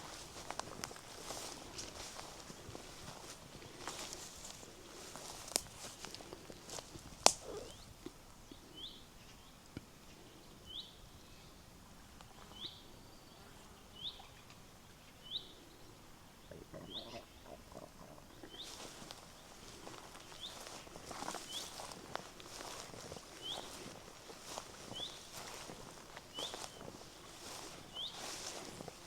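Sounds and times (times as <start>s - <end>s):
soft footsteps on path: 0.0s - 8.4s, 18.0s - 29.0s.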